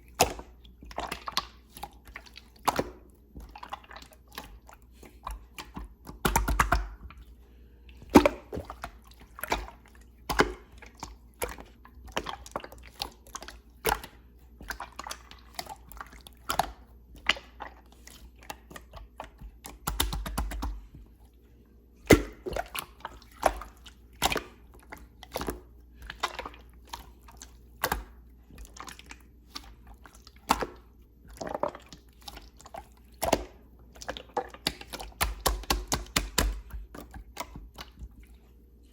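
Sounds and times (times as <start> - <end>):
slime sticky clicks and wet pops: 5.3 - 7.2, 8.1 - 17.5, 18.5 - 20.9, 33.2 - 38.0.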